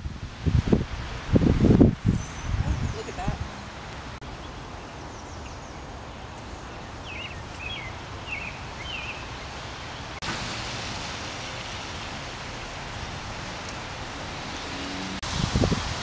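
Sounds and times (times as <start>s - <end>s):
wind noise: 0.0s - 4.2s, 10.2s - 16.0s.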